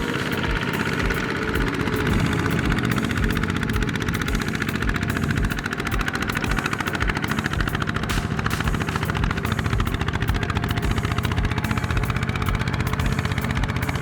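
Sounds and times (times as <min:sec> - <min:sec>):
tractor engine chugging: 0:00.0 - 0:14.0.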